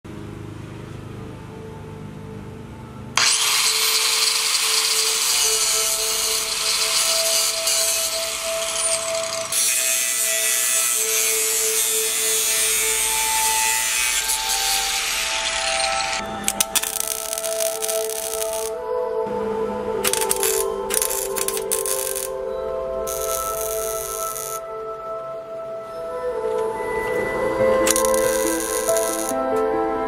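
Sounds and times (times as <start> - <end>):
power grinder grinding metal: 3.2 - 18.8, 20.0 - 22.4, 23.1 - 24.6, 27.8 - 29.4.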